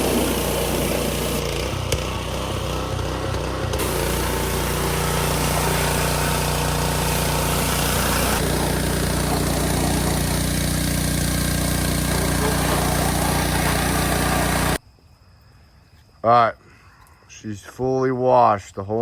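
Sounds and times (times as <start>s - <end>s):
water spray hissing: 0.0s - 1.6s, 3.7s - 14.8s
pressure washer engine droning: 0.0s - 14.8s.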